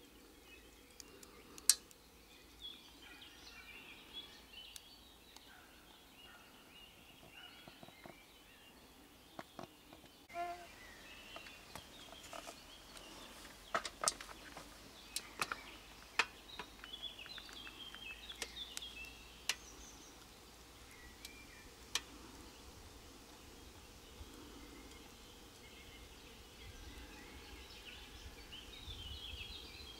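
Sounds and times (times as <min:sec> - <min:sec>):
faint bird chirps: 0:10.2 - 0:13.5.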